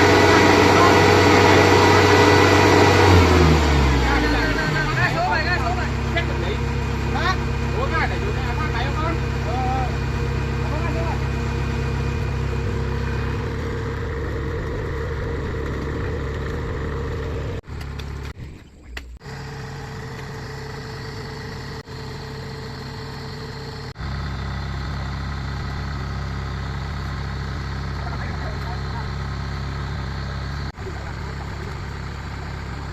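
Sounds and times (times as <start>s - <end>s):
heavy machine engine running: 0.0s - 18.4s, 19.2s - 32.9s.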